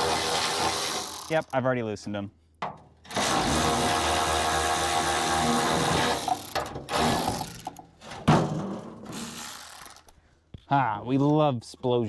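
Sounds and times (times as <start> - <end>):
power tool running on a bolt: 0.0 - 1.5, 3.1 - 7.8, 9.1 - 10.1.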